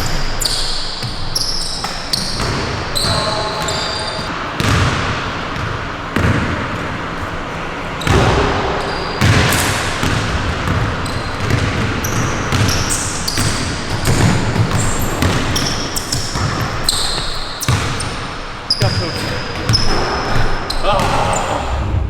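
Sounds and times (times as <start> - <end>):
shoe squeaks: 0.0 - 4.3, 8.0 - 9.6, 11.0 - 21.6
basketball bouncing on court floor: 0.0 - 7.1, 8.0 - 21.4.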